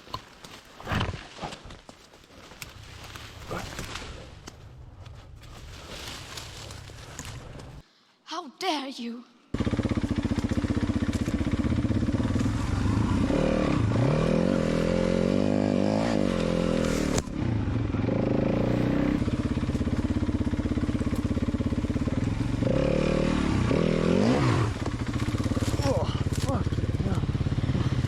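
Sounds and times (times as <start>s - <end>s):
dirt bike engine revving: 9.6s - 28.0s.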